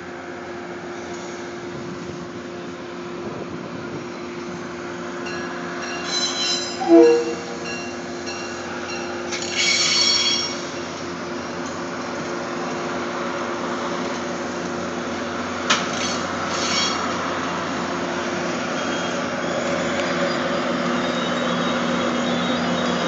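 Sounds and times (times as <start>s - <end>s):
wheels rumbling on rail: 0.0s - 23.0s
diesel engine drone: 10.6s - 23.0s.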